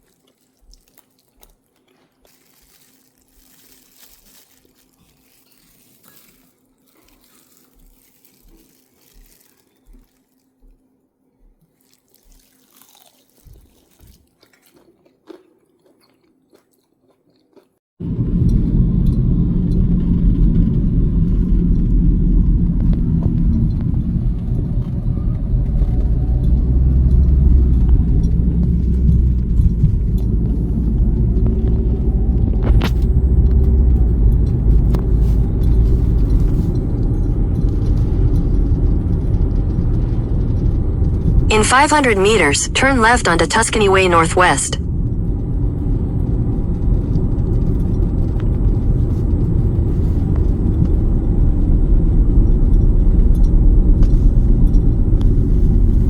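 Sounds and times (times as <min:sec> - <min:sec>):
car driving heard from inside: 0:18.0 - 0:41.5, 0:44.8 - 0:56.0
low hum: 0:18.0 - 0:56.0.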